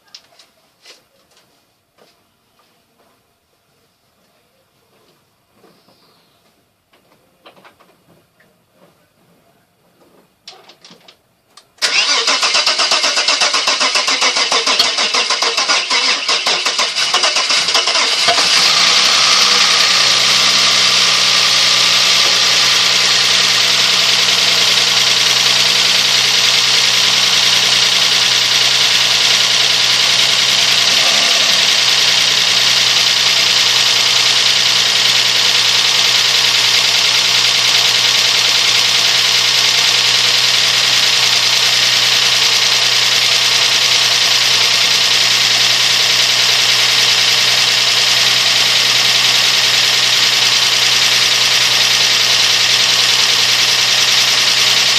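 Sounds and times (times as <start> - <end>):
car engine cranking and idling: 11.6 - 54.9.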